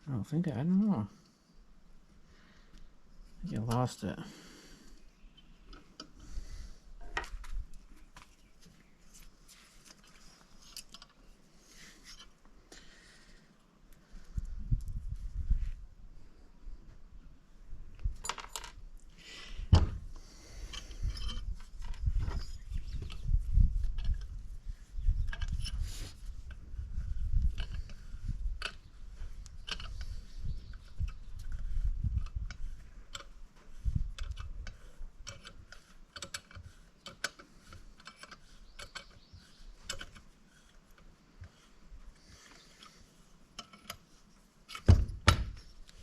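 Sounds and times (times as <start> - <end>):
metal tools clicking and scraping: 20.6 - 23.4, 25.2 - 26.6, 29.5 - 41.7, 42.4 - 44.9
small metal parts clicking: 34.2 - 41.1.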